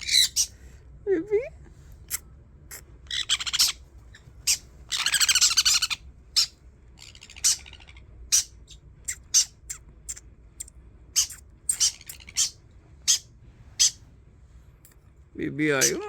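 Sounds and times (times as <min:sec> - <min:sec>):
parrot chirping and screeching: 0:00.0 - 0:00.6, 0:03.1 - 0:10.2, 0:11.1 - 0:14.1, 0:15.8 - 0:16.0.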